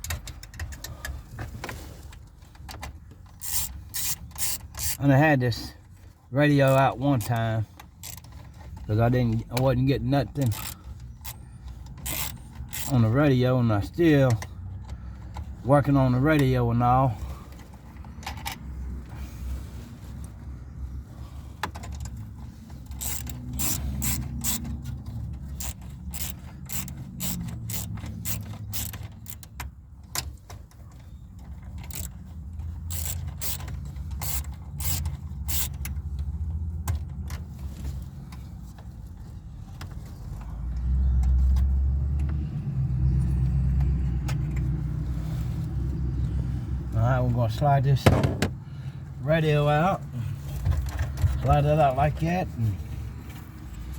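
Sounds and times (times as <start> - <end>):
low rumbling handling noise: 0.0 - 53.9
socket ratchet clicking: 3.3 - 5.0, 10.4 - 13.0, 22.9 - 30.3, 31.5 - 37.2.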